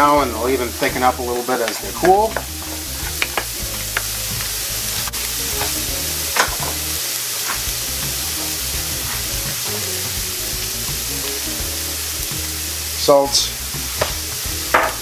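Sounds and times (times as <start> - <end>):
utensil knocks: 0.0 - 8.2, 14.0 - 15.0
background music: 0.0 - 15.0
meat sizzling in a pan: 0.0 - 15.0.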